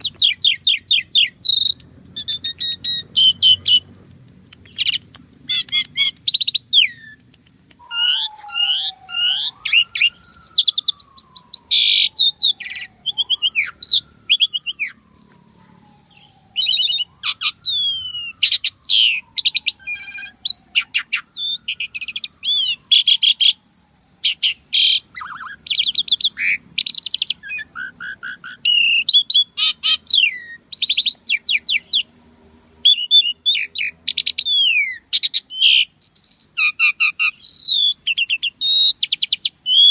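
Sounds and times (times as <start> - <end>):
starling singing: 0.0 - 39.9
low whistle sliding downward: 7.8 - 23.6.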